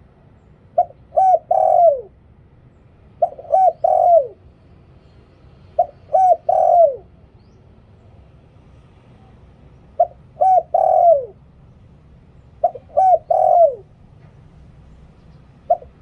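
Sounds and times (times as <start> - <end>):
dove cooing: 0.7 - 2.2, 3.2 - 4.4, 5.8 - 7.2, 9.9 - 11.5, 12.5 - 14.0, 15.5 - 16.0.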